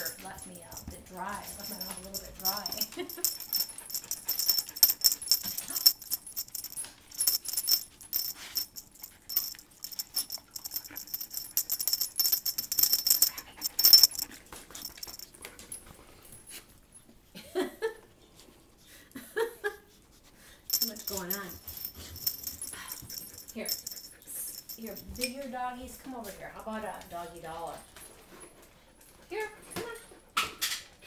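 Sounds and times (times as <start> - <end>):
dog collar tags jingling: 0.0 - 16.6, 20.7 - 28.2.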